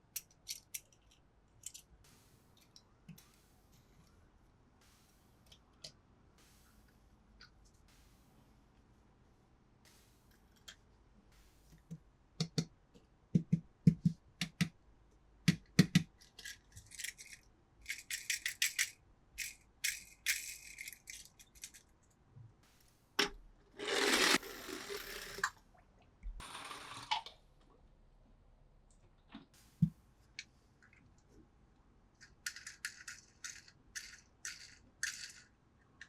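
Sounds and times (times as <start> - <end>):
toy cars clicking and rattling: 0.1 - 1.9, 16.2 - 21.9, 23.8 - 25.6, 32.2 - 36.0.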